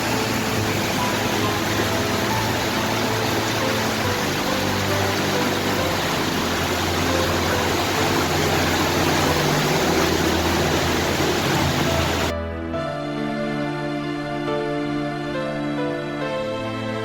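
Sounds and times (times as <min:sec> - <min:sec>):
rushing water: 0:00.0 - 0:12.3
slow background music: 0:00.0 - 0:17.0.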